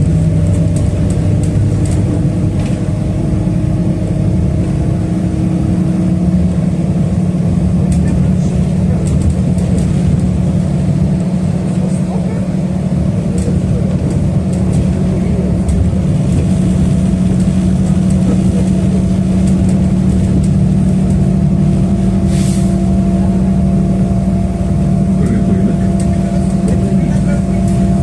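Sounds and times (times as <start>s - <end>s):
bus engine hum: 0.0s - 28.0s
road noise: 0.0s - 28.0s
brief hiss: 22.3s - 22.8s.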